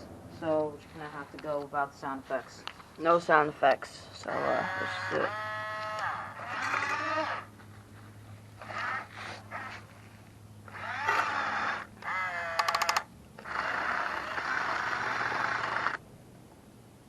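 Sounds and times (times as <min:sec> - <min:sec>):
toy electric motors whining: 0:04.3 - 0:07.5, 0:08.6 - 0:09.9, 0:10.6 - 0:16.0
rattle of clicks: 0:11.0 - 0:16.0.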